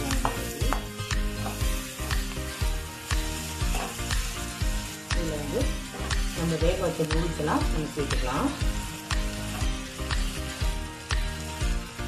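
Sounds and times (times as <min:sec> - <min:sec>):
gravy sizzling in oil: 0:00.0 - 0:12.0
metal spatula scraping a pan: 0:03.3 - 0:04.3.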